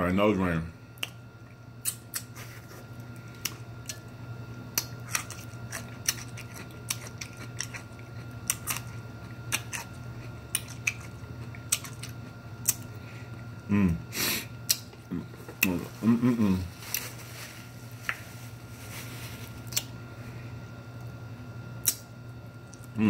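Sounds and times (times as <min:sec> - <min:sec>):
person chewing with wet smacks: 0:01.0 - 0:13.7, 0:14.6 - 0:15.8, 0:19.6 - 0:20.0, 0:21.8 - 0:23.0.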